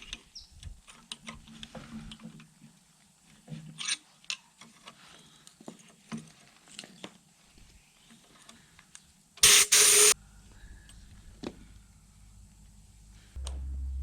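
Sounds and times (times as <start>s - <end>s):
loud hiss: 9.4s - 10.2s.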